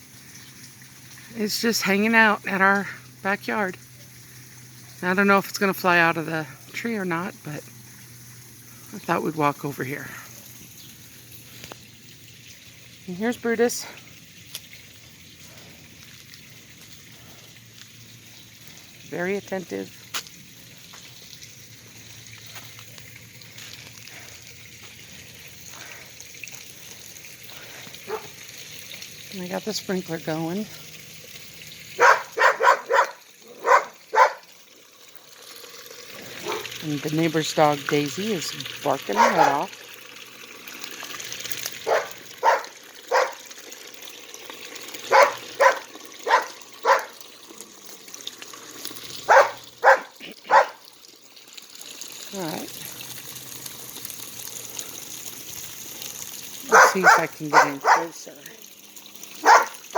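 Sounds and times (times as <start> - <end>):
faint ticks of sprinkler: 0.0 - 59.9
sprinkler spraying water: 0.0 - 59.9
dog barking: 28.1 - 28.3, 32.0 - 34.5, 36.4 - 36.7, 39.1 - 39.7, 41.8 - 43.4, 45.1 - 47.2, 49.3 - 50.8, 56.6 - 58.2, 59.4 - 59.8.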